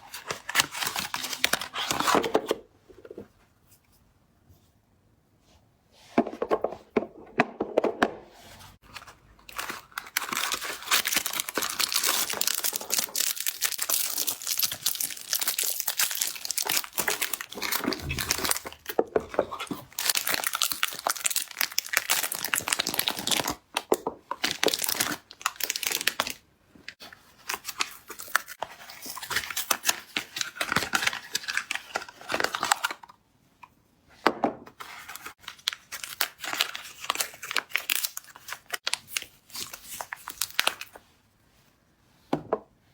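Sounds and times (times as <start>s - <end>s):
packaging tearing and crinkling: 9.5s - 23.6s, 24.4s - 26.4s, 35.4s - 40.9s.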